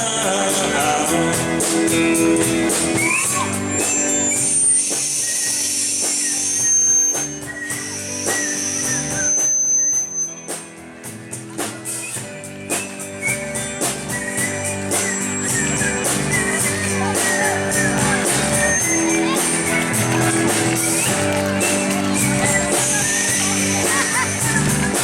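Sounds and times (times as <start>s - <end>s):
bass guitar: 0.0s - 25.0s
drums: 0.0s - 25.0s
electric guitar: 10.4s - 25.0s.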